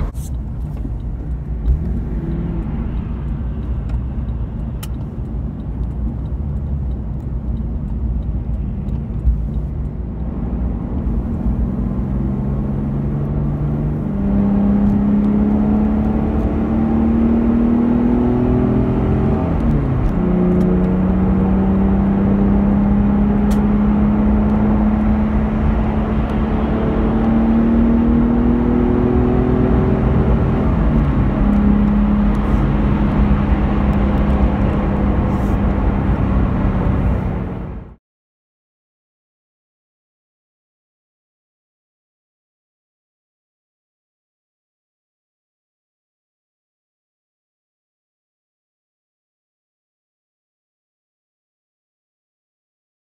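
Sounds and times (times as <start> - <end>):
car engine accelerating: 0.0 - 38.0
tyre and road rumble: 0.0 - 38.0.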